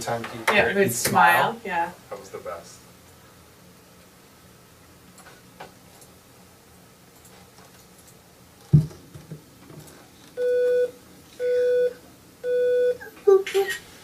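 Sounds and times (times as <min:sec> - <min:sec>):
electronic test beeps: 0:10.4 - 0:13.1.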